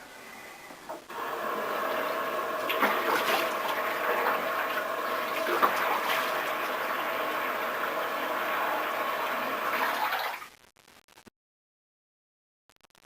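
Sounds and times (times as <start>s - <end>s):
water running and splashing: 1.1s - 10.4s.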